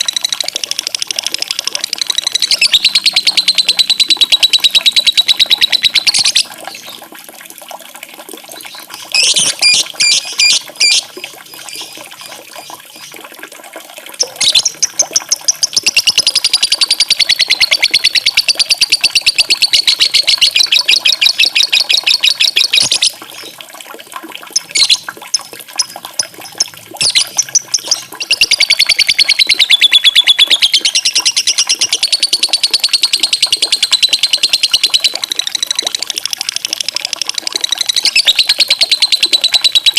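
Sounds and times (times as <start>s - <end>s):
faint running water: 0.0s - 39.9s
songbird trilling: 2.0s - 7.0s, 9.2s - 11.0s, 15.6s - 23.1s, 26.6s - 35.8s, 37.8s - 39.9s.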